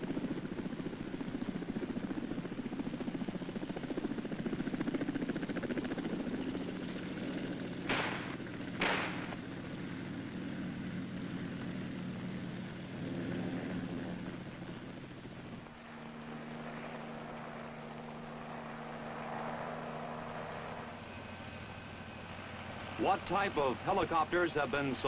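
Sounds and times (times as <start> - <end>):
helicopter rotors beating: 0.0 - 25.0
short sharp bursts: 7.9 - 9.4.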